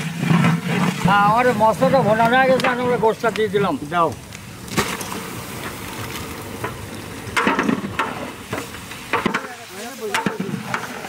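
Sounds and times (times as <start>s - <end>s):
meat sizzling in oil: 5.1s - 11.0s.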